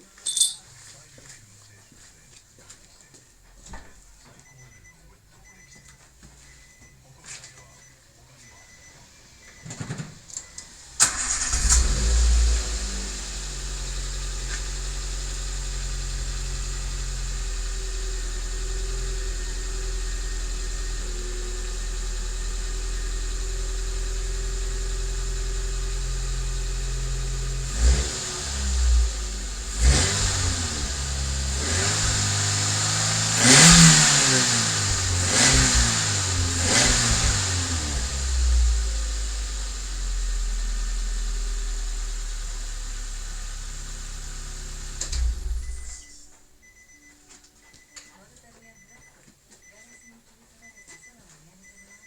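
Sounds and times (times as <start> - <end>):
car engine starting and idling: 9.0 - 47.0
car engine revving: 10.8 - 46.2.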